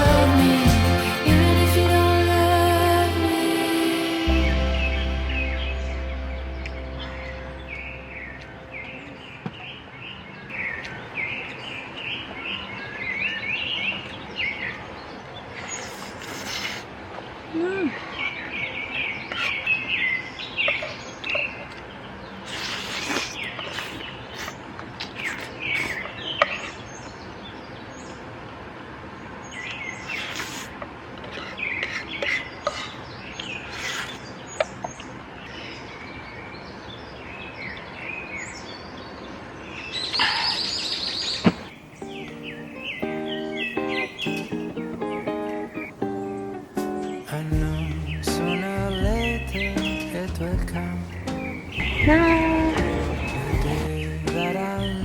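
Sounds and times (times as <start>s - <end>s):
birds chirping and singing: 4.1s - 16.1s, 31.4s - 55.0s.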